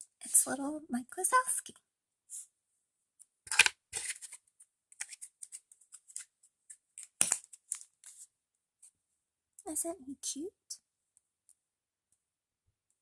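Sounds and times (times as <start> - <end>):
plastic packaging rustling: 3.5 - 4.4.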